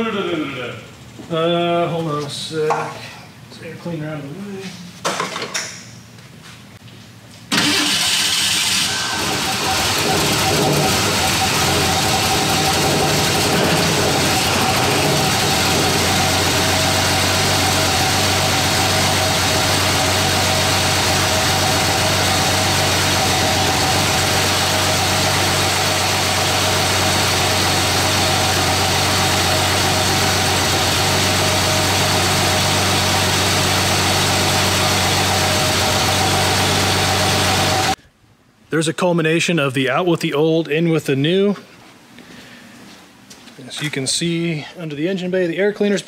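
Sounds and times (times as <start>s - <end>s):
engine idling: 7.6s - 38.0s
high whine: 9.0s - 38.0s.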